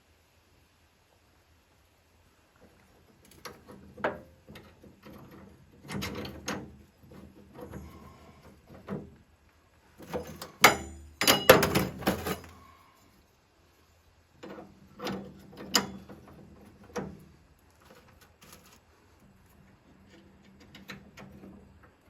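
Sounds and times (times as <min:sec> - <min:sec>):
metal parts and tools clanking: 0:10.0 - 0:12.7, 0:14.4 - 0:17.1.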